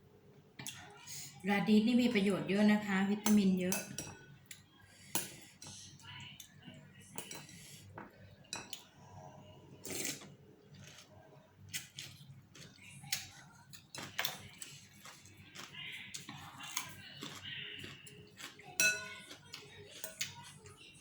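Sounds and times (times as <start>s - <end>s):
utensils clinking against a bowl: 3.2s - 6.0s, 7.0s - 8.9s, 11.7s - 20.7s.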